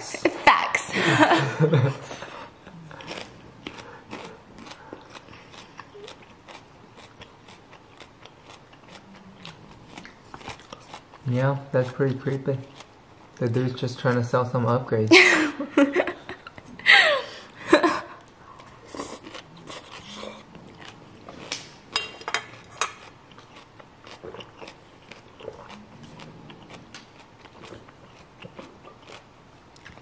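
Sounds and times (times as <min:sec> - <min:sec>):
chewing noodles: 0:02.2 - 0:14.3, 0:18.2 - 0:30.0.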